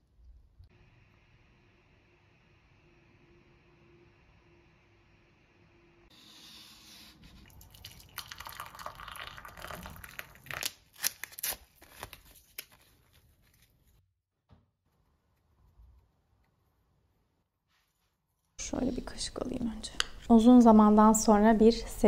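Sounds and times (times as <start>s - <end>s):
paper crinkling and tearing: 9.7s - 14.0s.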